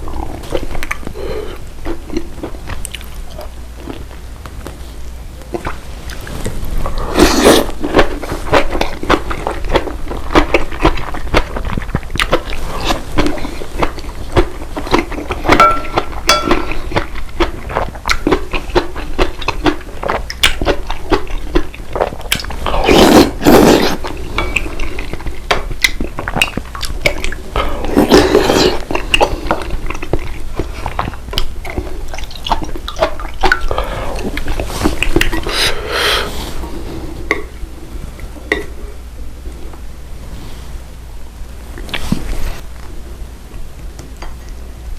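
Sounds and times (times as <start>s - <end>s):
chewing: 0.0s - 4.2s, 5.4s - 35.6s
utensils clinking against dishes: 15.5s - 17.0s.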